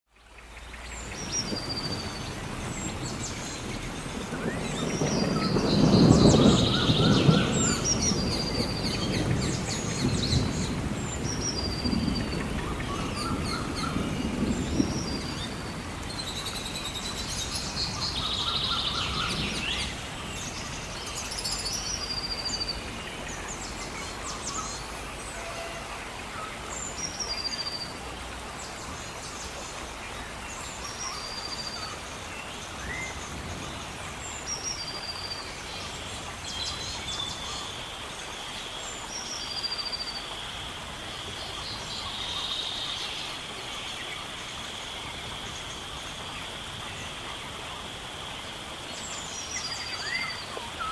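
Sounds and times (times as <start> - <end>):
low background hiss: 0.2 - 50.9
birds calling: 0.4 - 27.9.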